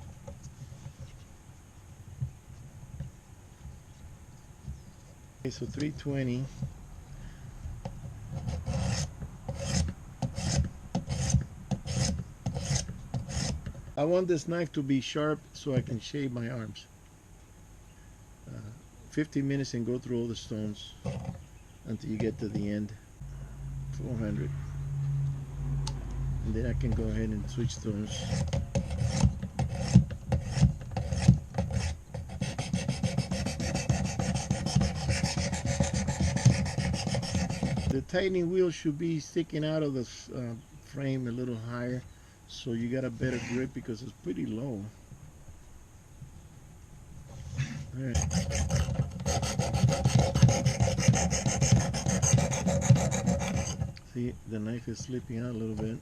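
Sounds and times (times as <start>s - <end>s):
sharpening stone rasping on blade: 8.6s - 13.6s.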